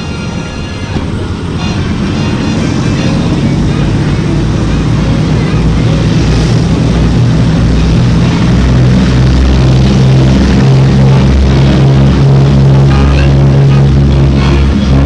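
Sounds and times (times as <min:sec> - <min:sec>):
propeller aircraft engines droning: 0:00.0 - 0:15.0.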